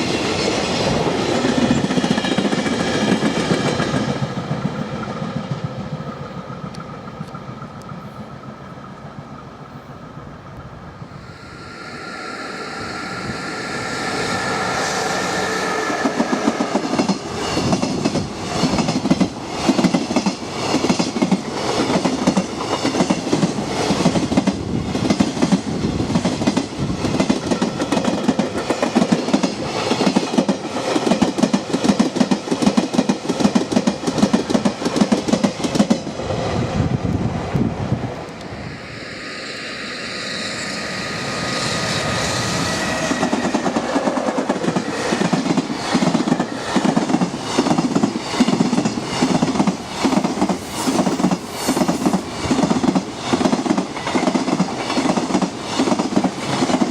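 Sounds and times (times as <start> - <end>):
electric locomotive whine: 0.0 - 56.9
freight train passing: 0.0 - 56.9.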